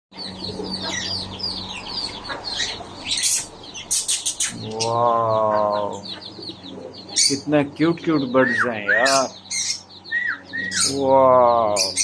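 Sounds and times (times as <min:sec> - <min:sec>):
flock of small birds chirping: 0:00.1 - 0:12.0
low drawn-out voice: 0:04.6 - 0:06.1, 0:10.7 - 0:12.0.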